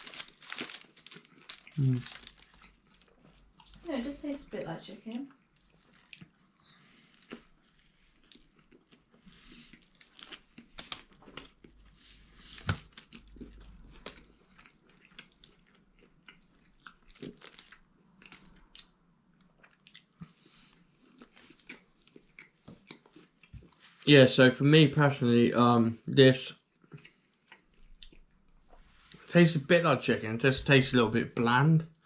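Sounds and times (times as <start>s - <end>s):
person chewing food: 0.0s - 3.9s, 5.3s - 23.9s, 26.6s - 29.3s.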